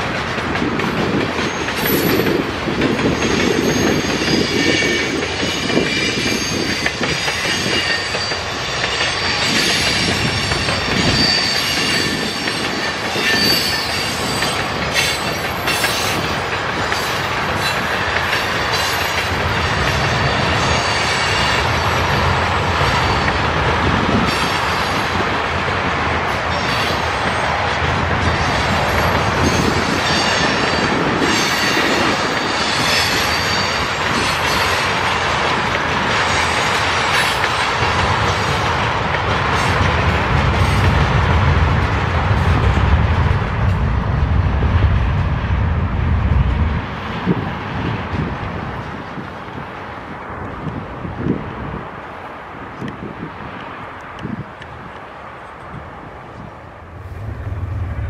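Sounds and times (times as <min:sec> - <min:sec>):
train wheels clattering: 0:00.0 - 0:43.9
low train rumble: 0:00.0 - 0:58.0
high wheel squeal: 0:03.0 - 0:16.2.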